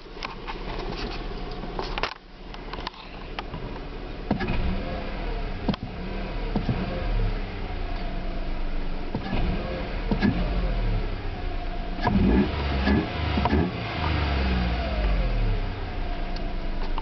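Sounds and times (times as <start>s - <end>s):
car engine revving: 3.6s - 17.0s.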